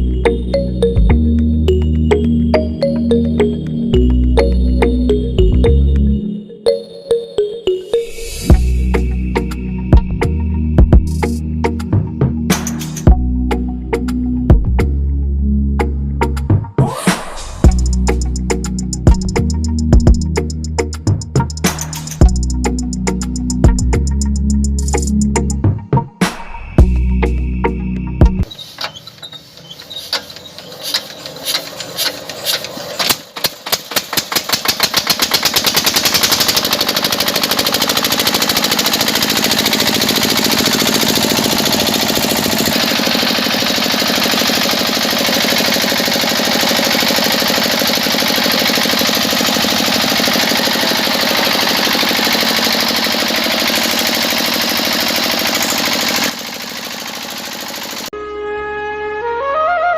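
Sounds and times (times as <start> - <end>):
small motor mechanism clicking: 28.6 - 58.1.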